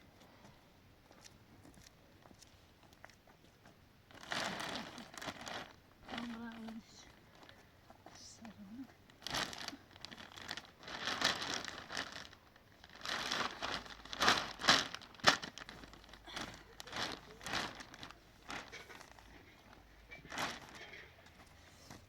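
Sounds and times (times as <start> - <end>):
plastic sheeting crinkling: 4.1 - 7.6, 8.4 - 22.0
plastic sheeting snap: 12.9 - 18.8.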